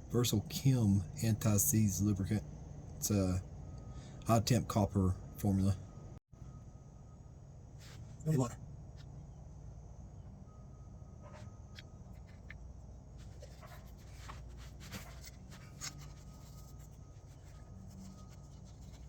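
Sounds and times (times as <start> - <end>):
steady low hum: 0.0 - 19.0
brush scratching on metal: 13.2 - 19.0.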